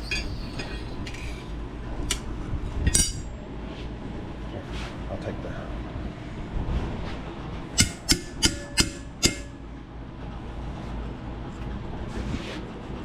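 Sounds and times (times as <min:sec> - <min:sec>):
hammer blows on metal: 0:07.8 - 0:09.6.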